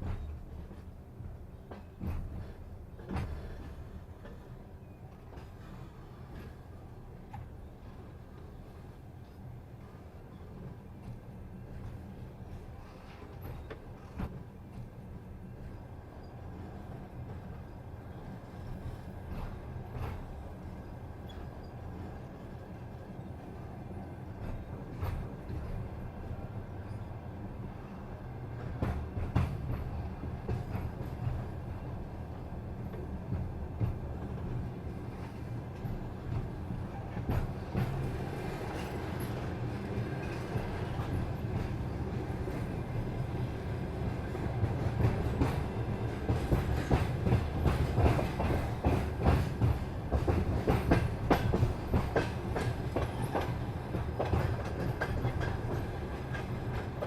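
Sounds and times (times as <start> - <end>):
train rumbling: 0.0 - 57.0
train wheels clicking on rail joints: 0.0 - 57.0.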